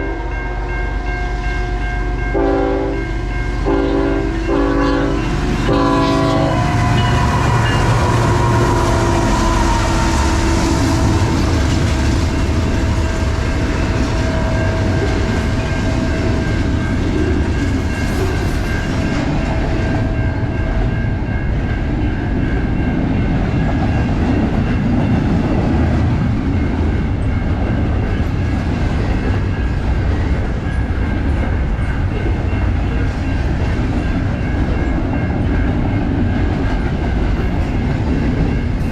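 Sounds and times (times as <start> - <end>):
train horn blast: 0.0 - 12.0
train passing on rails: 0.0 - 38.9.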